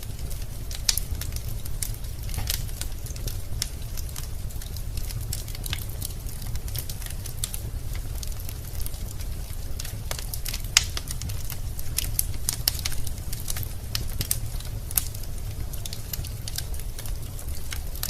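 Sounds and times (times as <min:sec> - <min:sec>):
fire rumbling: 0:00.0 - 0:18.0
logs crackling and popping: 0:00.0 - 0:18.0.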